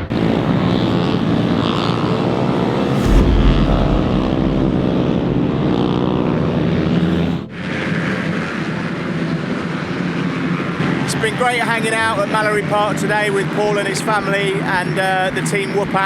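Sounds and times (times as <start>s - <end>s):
racing motorcycle engines buzzing: 6.2s - 16.0s.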